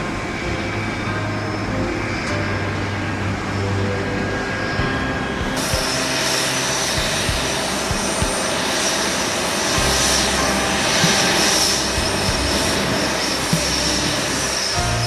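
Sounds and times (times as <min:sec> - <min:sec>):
jet engines roaring with whine: 0:00.0 - 0:15.0.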